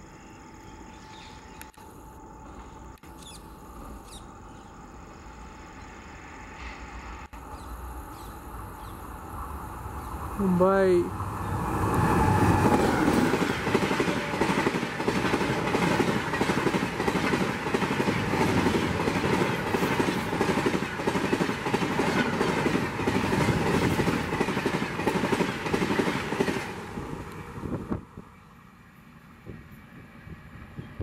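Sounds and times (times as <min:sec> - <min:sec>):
rumble of train coaches: 0:00.4 - 0:31.0
locomotive rushing by: 0:06.6 - 0:31.0.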